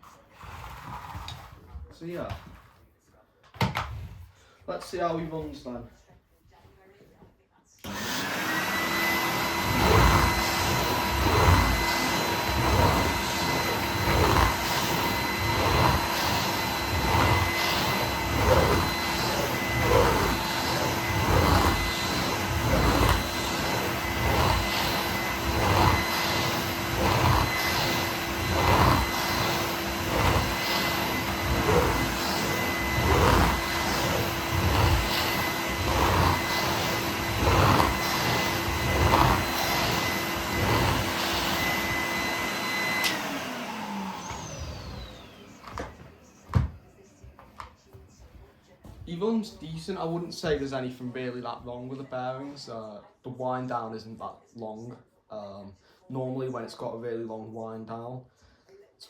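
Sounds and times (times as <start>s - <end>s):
vacuum cleaner motor whining: 7.8s - 47.7s.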